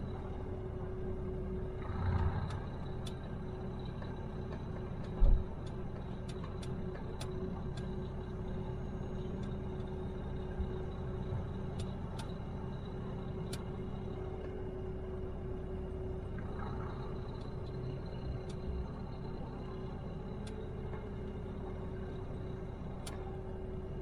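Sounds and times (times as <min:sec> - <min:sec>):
truck engine droning: 0:00.0 - 0:24.0
faint clicks: 0:11.8 - 0:12.4, 0:17.2 - 0:19.8, 0:20.4 - 0:21.8, 0:22.9 - 0:23.3.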